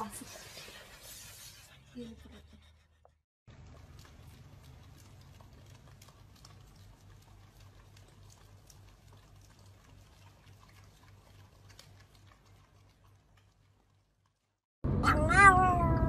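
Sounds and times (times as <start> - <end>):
dogs licking and smacking: 3.5 - 14.6.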